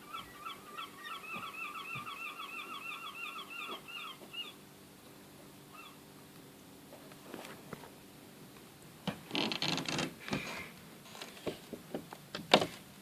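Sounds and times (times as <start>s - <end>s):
gull yelping calls: 0.0s - 4.6s, 5.7s - 6.0s.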